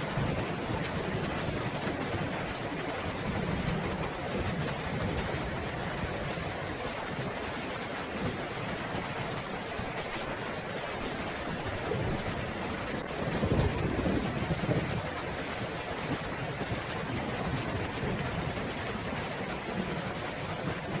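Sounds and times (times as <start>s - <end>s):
steady rainfall: 0.0s - 21.0s
low roll of thunder: 11.8s - 21.0s.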